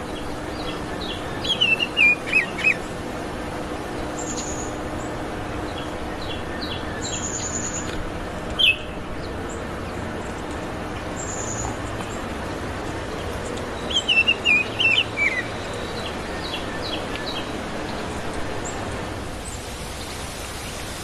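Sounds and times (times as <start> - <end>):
steady background hiss: 0.0 - 21.0
bird singing whistled notes: 0.6 - 2.8, 8.6 - 8.9, 13.8 - 17.5.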